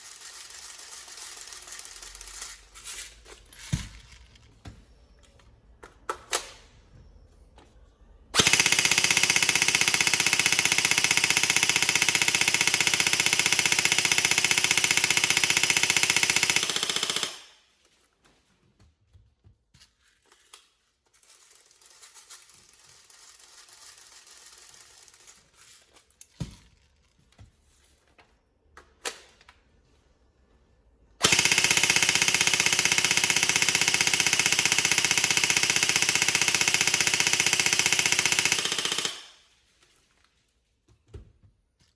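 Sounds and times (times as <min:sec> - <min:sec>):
airsoft gun firing full auto: 0:00.0 - 0:02.4, 0:08.4 - 0:17.6, 0:31.2 - 0:39.6.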